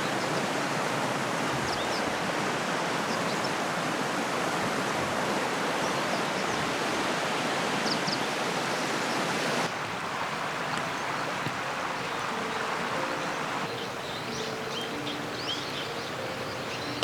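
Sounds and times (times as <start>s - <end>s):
river water rushing: 0.0s - 17.0s
faint bird chirps: 12.0s - 17.0s.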